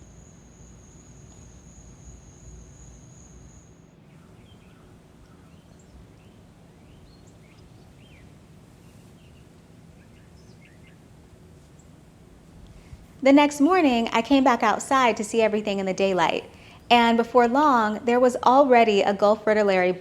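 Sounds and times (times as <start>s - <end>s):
insect trilling: 0.0s - 3.8s
faint outdoor hum: 0.0s - 20.0s.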